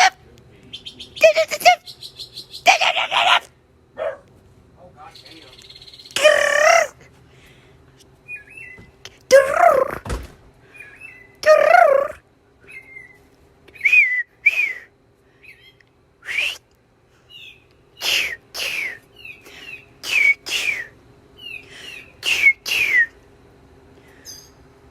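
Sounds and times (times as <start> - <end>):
mockingbird whistling: 0.7 - 3.5, 5.1 - 7.0, 8.3 - 10.0, 10.7 - 16.6, 17.3 - 23.2
person whistling: 13.8 - 14.9, 16.2 - 16.6, 20.1 - 20.9.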